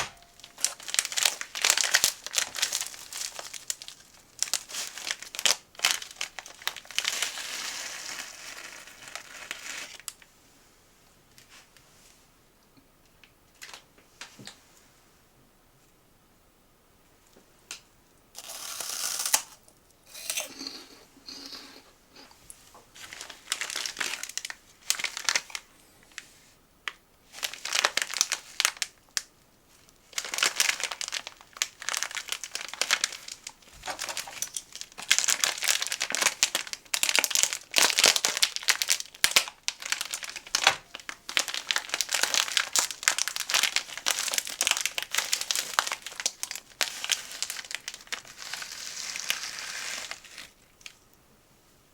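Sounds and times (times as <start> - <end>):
plastic packaging crinkling: 0.0 - 10.3, 23.0 - 26.2, 27.3 - 51.0.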